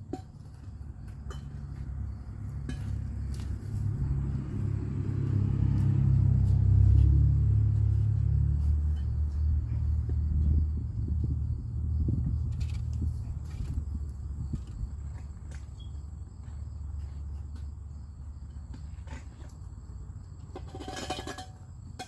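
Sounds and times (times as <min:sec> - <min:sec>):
motor vehicle passing by: 0:00.9 - 0:15.4.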